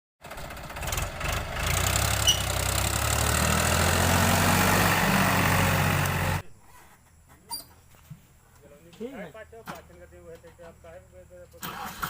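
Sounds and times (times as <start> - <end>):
tractor diesel engine running: 0.2 - 6.4.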